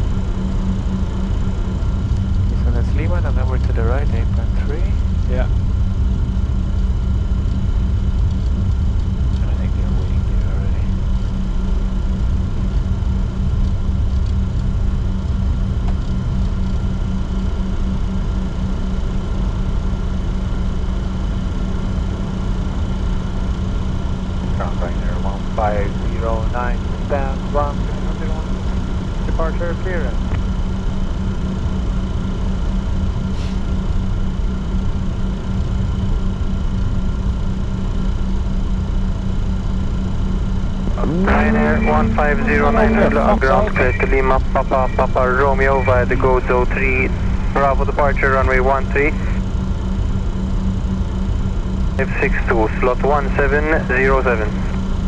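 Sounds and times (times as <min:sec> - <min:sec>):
jet cockpit noise taxiing: 0:00.0 - 0:55.0
low hum: 0:00.0 - 0:55.0
faint high tones: 0:41.0 - 0:49.4.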